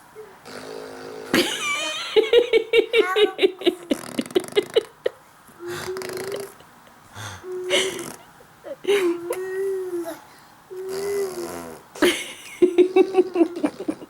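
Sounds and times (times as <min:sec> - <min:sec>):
child giggling: 0:01.4 - 0:06.7, 0:07.6 - 0:10.2, 0:12.0 - 0:14.0
child's held ahh: 0:07.2 - 0:11.7.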